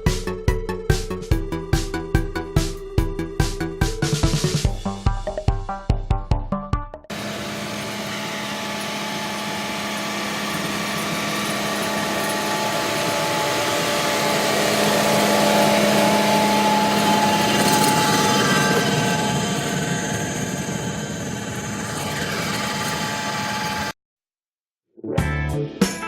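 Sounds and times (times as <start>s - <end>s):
tractor with tiller droning: 7.1s - 23.9s.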